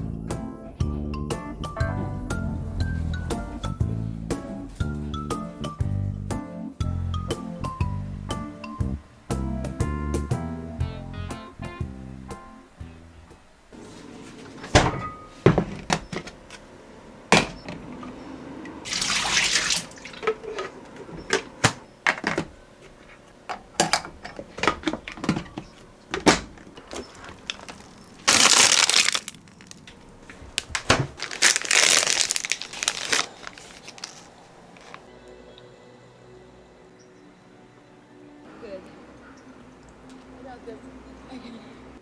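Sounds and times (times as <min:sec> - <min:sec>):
water running: 0:18.7 - 0:30.6
clicks and knocks of objects: 0:20.2 - 0:35.1.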